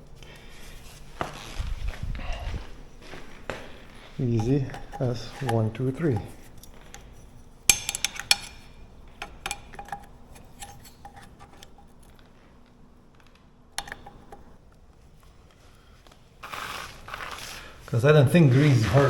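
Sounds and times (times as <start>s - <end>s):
metallic clicks of hand tools: 7.7s - 11.8s, 13.8s - 14.5s.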